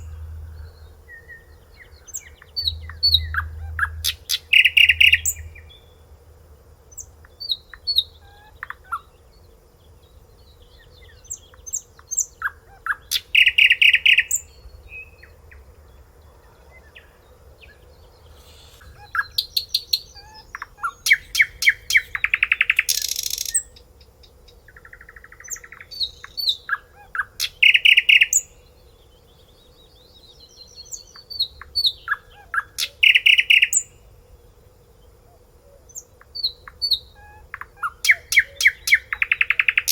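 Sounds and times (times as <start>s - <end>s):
finch singing with trills: 0.0s - 5.9s, 36.2s - 39.9s
faint steady hum: 0.0s - 39.9s.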